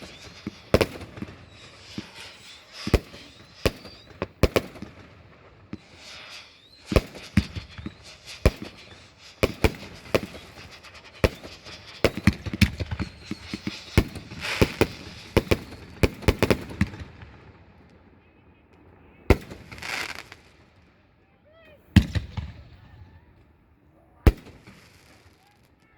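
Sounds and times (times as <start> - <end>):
firework hissing rush: 0.0 - 5.0, 5.7 - 16.7
fireworks bangs: 0.0 - 17.8, 19.3 - 20.8, 21.8 - 23.4, 24.2 - 25.9.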